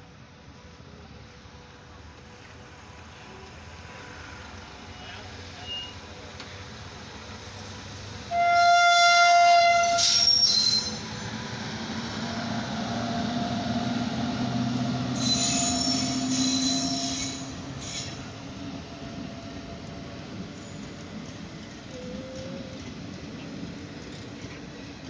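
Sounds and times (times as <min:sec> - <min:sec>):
train running past: 0:00.0 - 0:25.0
locomotive horn blast: 0:08.3 - 0:10.3
wheels squealing: 0:15.2 - 0:18.2.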